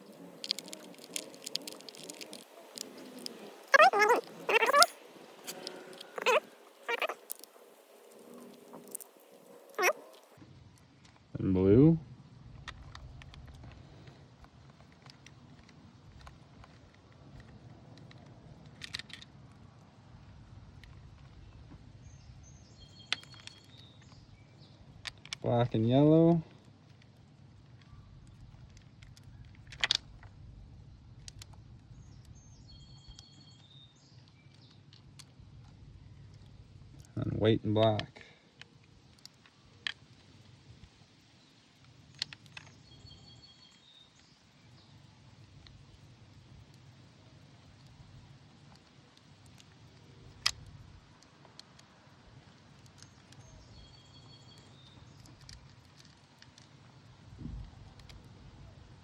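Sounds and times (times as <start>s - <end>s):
small metal and plastic parts clicking: 0.0s - 10.3s, 14.7s - 19.3s, 27.8s - 30.2s, 51.4s - 56.9s
wire terminals clicking: 0.0s - 10.3s.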